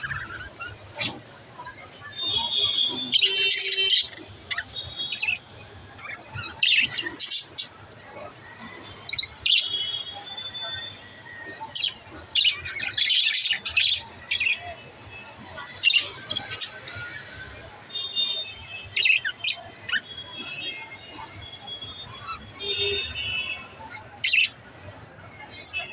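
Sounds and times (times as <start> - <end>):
budgerigars chirping: 0.0 - 1.2, 2.1 - 9.7, 11.6 - 14.7, 15.5 - 17.5, 22.0 - 22.9, 23.5 - 24.6.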